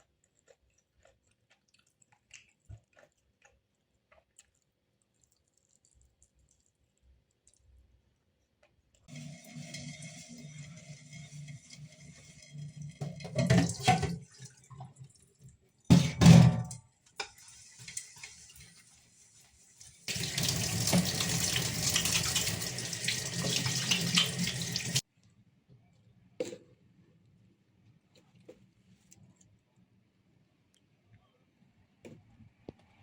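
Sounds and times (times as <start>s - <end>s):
tap running into sink: 20.1s - 25.0s.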